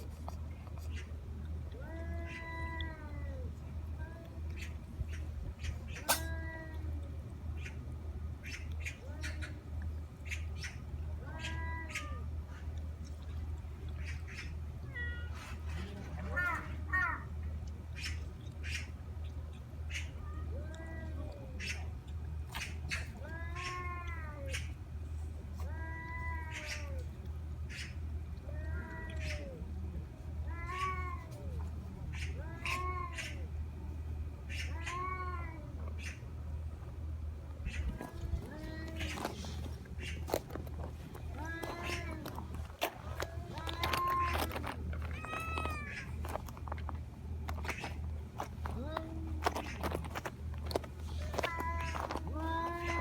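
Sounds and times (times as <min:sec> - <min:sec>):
steady low hum: 0:00.0 - 0:53.0
cat meowing: 0:01.8 - 0:04.4, 0:05.9 - 0:07.1, 0:11.2 - 0:12.3, 0:22.9 - 0:24.7, 0:28.5 - 0:29.6, 0:30.4 - 0:33.4, 0:34.5 - 0:36.2, 0:37.7 - 0:40.6, 0:41.2 - 0:42.5, 0:43.2 - 0:46.2, 0:50.8 - 0:53.0.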